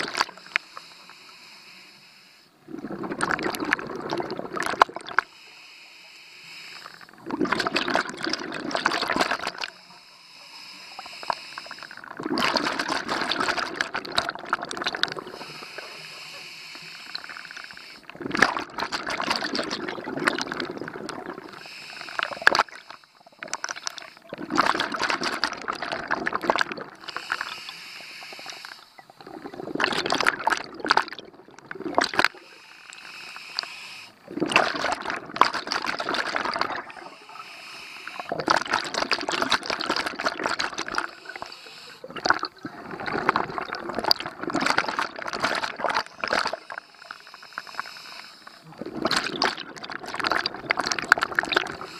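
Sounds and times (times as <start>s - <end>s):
exhaled bubbles underwater: 0.0s - 0.6s, 2.6s - 5.3s, 6.8s - 9.8s, 10.9s - 51.9s
regulator inhales: 0.4s - 2.6s, 5.2s - 7.1s, 9.7s - 12.0s, 15.3s - 18.1s, 27.1s - 29.1s, 32.3s - 34.3s, 36.9s - 38.3s, 41.1s - 42.1s, 46.6s - 48.7s.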